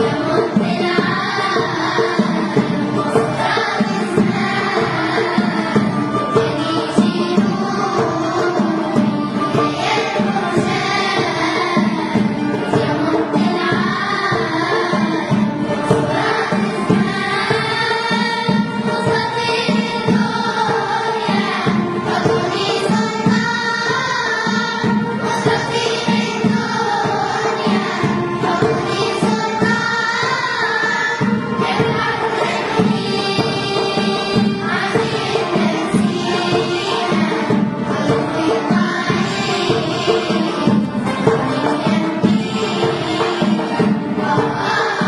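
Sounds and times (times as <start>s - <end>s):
choir singing in unison: 0.0s - 45.0s
instrumental backing with percussion: 0.0s - 45.0s.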